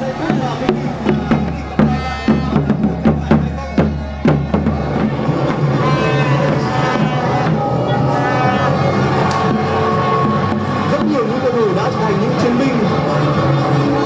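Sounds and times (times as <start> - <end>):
drums struck in irregular beats: 0.0 - 14.0
horn-like blare: 4.8 - 11.6.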